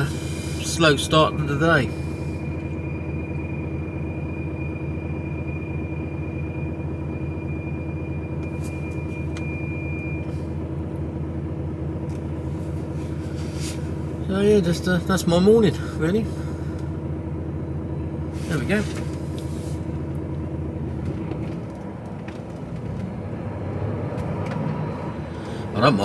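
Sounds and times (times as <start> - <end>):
thin high whine: 0.0 - 11.4
diesel engine droning: 0.0 - 26.0.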